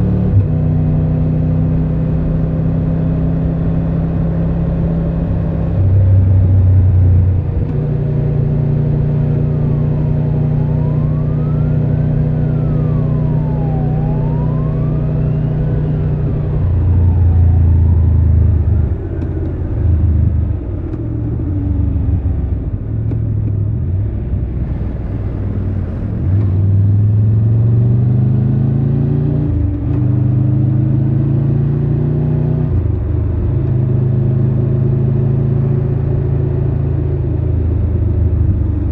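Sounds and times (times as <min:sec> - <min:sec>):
siren wailing: 0:09.0 - 0:20.6.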